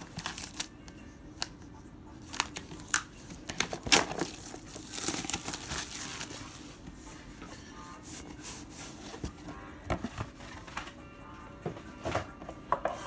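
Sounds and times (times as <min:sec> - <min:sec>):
plastic packaging crinkling and tearing: 0:00.0 - 0:00.7, 0:02.2 - 0:06.7.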